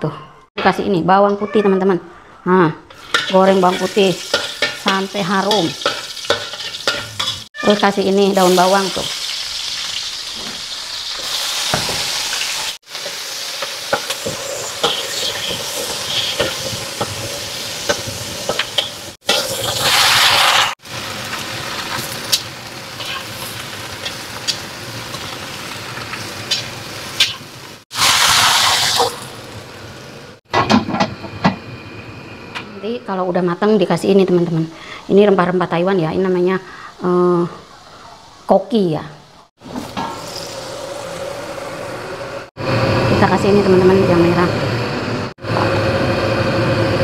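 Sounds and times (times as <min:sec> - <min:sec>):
spatula scraping a wok: 0:02.9 - 0:07.6, 0:11.6 - 0:20.8, 0:21.8 - 0:25.4
food sizzling in a wok: 0:02.9 - 0:30.4, 0:39.6 - 0:44.7.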